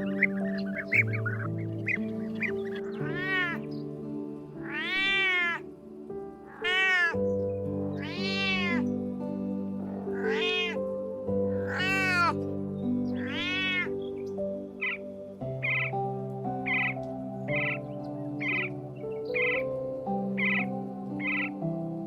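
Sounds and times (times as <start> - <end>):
background music with low notes: 0.0 - 22.0
animal drawn-out calls: 2.7 - 3.6, 4.6 - 5.7, 6.5 - 7.2, 8.0 - 8.8, 9.8 - 10.8, 11.5 - 12.4, 13.2 - 13.9.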